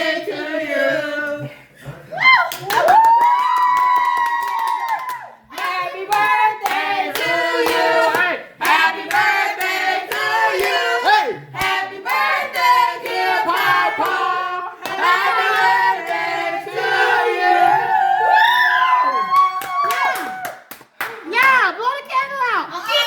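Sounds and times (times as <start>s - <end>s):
group singing: 0.0s - 2.0s, 5.5s - 18.3s
hands clapping along: 2.4s - 10.8s, 19.3s - 21.6s.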